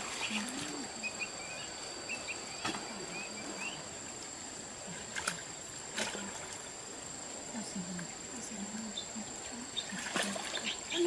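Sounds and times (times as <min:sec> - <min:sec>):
high-pitched insect drone: 0:00.0 - 0:11.0
small chirping calls: 0:00.1 - 0:03.9, 0:08.9 - 0:11.0.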